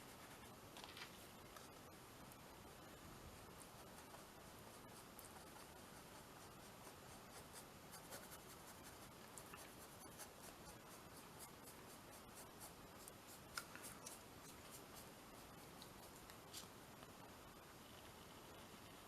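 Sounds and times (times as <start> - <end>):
paintbrush scratching on canvas: 3.5 - 16.8.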